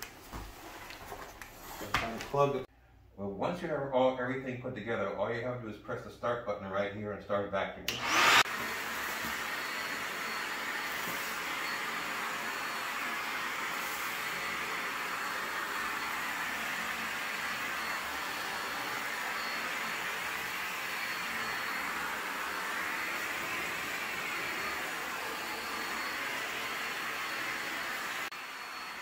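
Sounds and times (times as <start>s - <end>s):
vacuum cleaner running: 7.9s - 29.0s.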